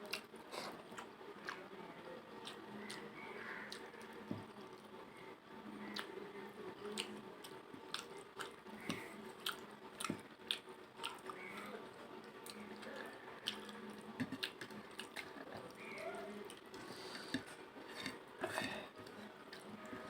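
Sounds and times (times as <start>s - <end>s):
person chewing and crunching: 0.0s - 1.6s, 2.4s - 4.1s, 6.9s - 11.8s, 12.4s - 20.0s.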